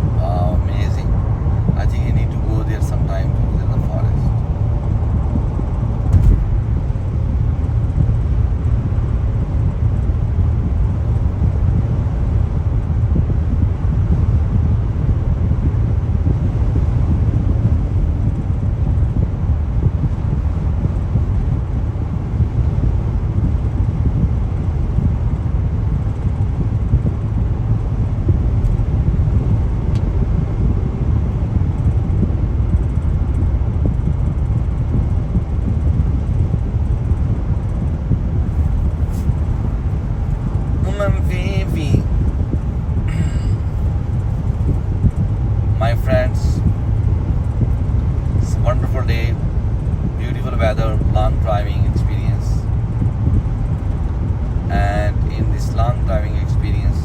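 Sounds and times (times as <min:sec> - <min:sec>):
wind on microphone: 0:00.0 - 0:56.0
car driving at highway speed: 0:00.0 - 0:57.0.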